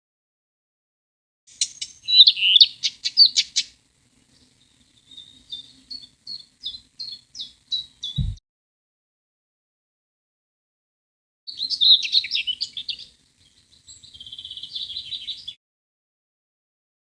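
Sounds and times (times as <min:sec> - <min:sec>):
songbird chirping: 0:01.5 - 0:08.4, 0:11.5 - 0:15.6
low thump: 0:08.2 - 0:08.4.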